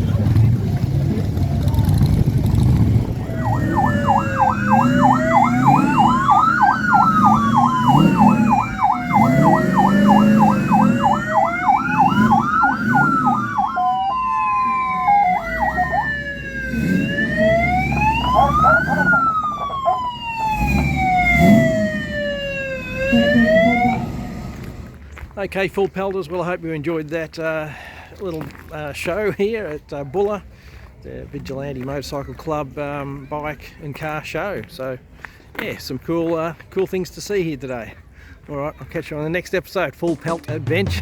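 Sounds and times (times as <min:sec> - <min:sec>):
siren wailing: 0:03.0 - 0:24.8
siren yelp: 0:03.1 - 0:24.6.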